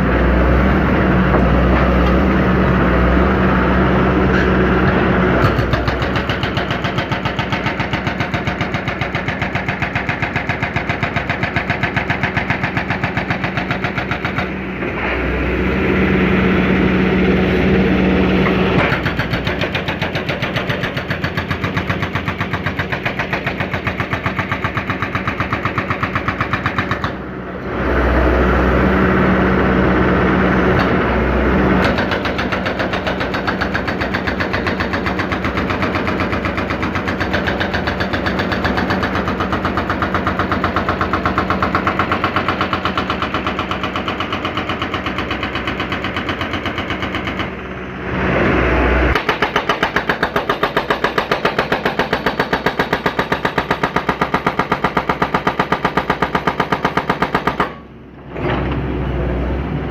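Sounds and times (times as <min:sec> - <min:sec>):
excavator engine running: 0:00.0 - 0:59.9
hydraulic breaker hammering: 0:05.4 - 0:14.6, 0:18.4 - 0:27.3, 0:31.7 - 0:47.6, 0:49.1 - 0:58.5.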